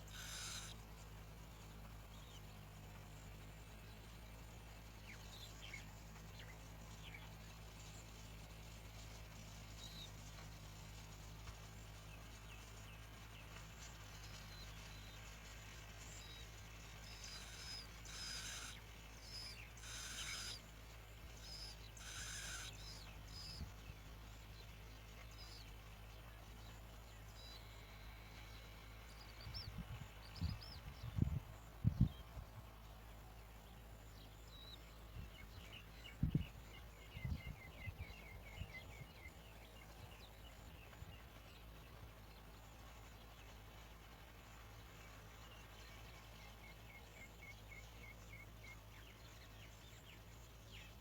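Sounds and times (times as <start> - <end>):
nestlings hissing rasps: 0.0 - 0.8, 17.2 - 20.6, 21.5 - 22.9
rapid high bird chirps: 0.0 - 0.8, 17.0 - 23.7.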